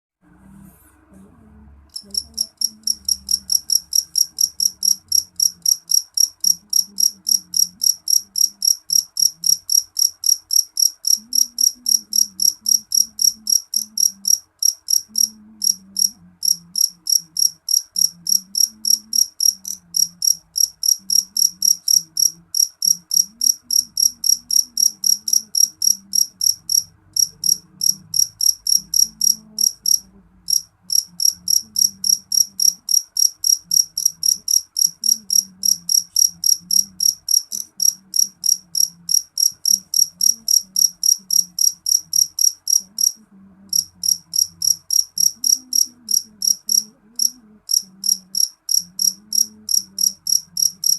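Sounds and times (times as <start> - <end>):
cricket chirping: 1.9 - 50.9.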